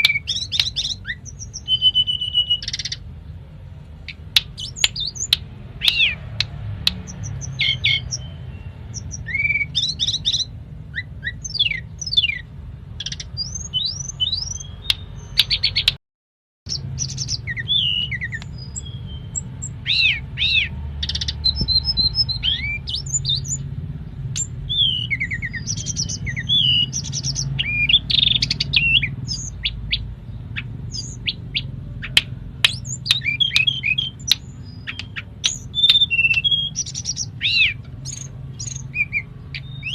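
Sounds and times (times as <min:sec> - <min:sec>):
bird singing chirps and whistles: 0:00.0 - 0:03.1, 0:04.1 - 0:16.0, 0:16.7 - 0:39.9.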